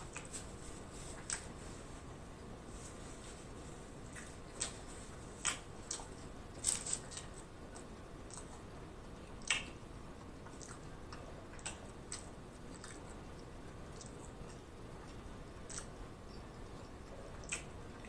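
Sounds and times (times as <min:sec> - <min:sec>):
faint steady hiss: 0:00.0 - 0:18.0
wet chewing clicks and smacks: 0:00.1 - 0:00.4, 0:01.2 - 0:01.5, 0:04.1 - 0:08.8, 0:09.4 - 0:18.0.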